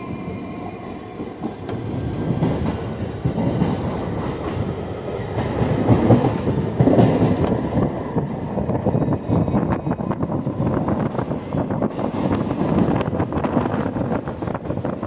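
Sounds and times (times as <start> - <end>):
train wheels clattering: 1.4 - 7.9.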